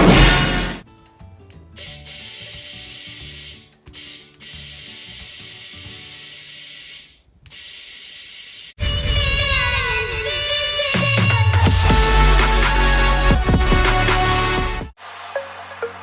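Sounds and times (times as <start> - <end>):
steady hiss: 1.8 - 8.8.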